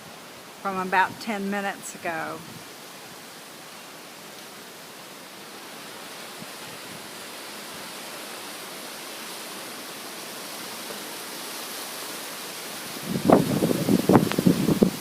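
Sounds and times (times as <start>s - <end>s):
rain and wind hissing: 0.0s - 15.0s
wind buffeting microphone: 12.9s - 15.0s.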